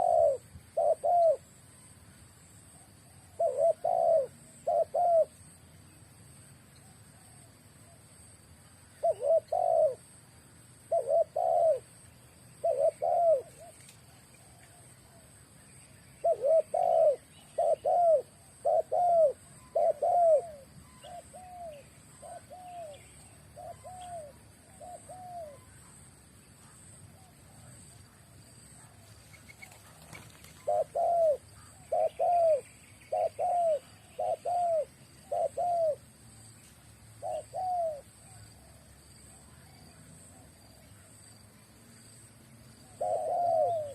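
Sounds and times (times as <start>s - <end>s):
dove cooing: 0.0s - 1.5s, 3.0s - 5.4s, 9.0s - 10.1s, 10.9s - 12.0s, 12.6s - 15.3s, 16.2s - 26.0s, 26.6s - 36.1s, 37.1s - 38.9s, 42.8s - 43.9s.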